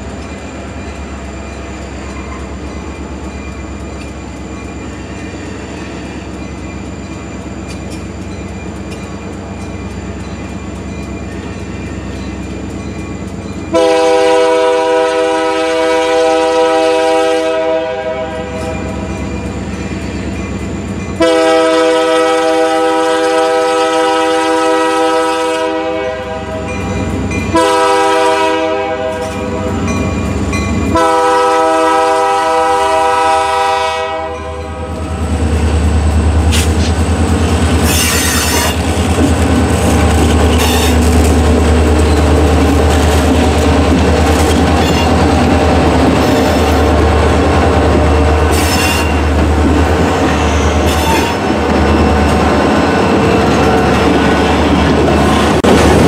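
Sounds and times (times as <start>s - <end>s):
train wheels clacking over joints: 0.0s - 13.8s, 34.9s - 56.0s
locomotive engine rumbling: 0.0s - 56.0s
locomotive air horn blasts: 13.7s - 18.8s, 21.2s - 26.8s, 27.5s - 29.9s, 30.9s - 35.0s, 48.1s - 49.3s
high-pitched wheel squeal: 37.8s - 38.9s, 39.9s - 41.1s, 44.4s - 45.2s, 48.5s - 49.3s, 50.2s - 52.2s.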